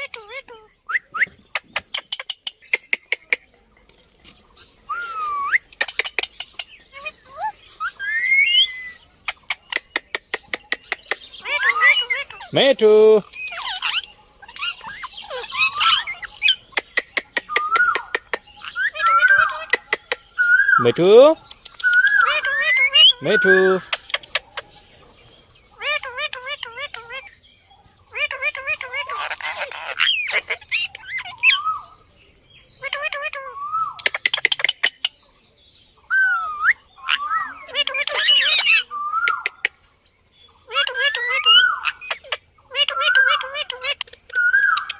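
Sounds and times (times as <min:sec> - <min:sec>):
parrot chirps and squawks: 0:00.0 - 0:03.5, 0:04.9 - 0:24.9, 0:25.8 - 0:27.4, 0:28.1 - 0:32.0, 0:32.8 - 0:35.2, 0:36.1 - 0:39.8, 0:40.6 - 0:44.9
parrot clicks: 0:21.4 - 0:22.1.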